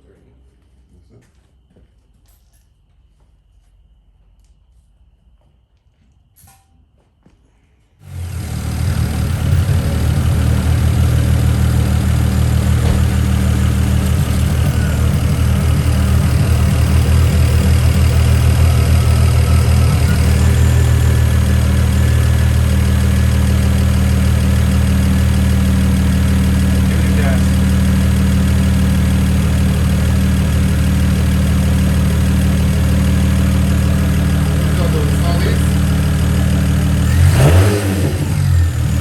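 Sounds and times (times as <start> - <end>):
car engine starting and idling: 8.0 - 39.0.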